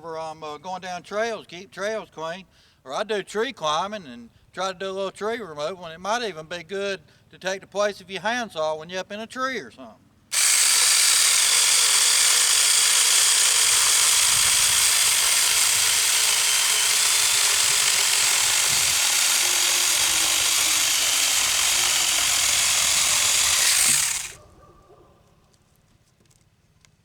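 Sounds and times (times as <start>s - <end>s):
chain cutting through wood: 10.3s - 24.4s
electric chainsaw whining: 10.3s - 24.4s.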